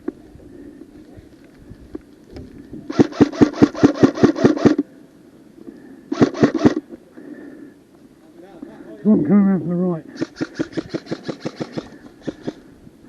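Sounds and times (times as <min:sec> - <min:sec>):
airsoft gun firing: 0:02.9 - 0:04.8, 0:06.1 - 0:06.8, 0:10.2 - 0:12.6.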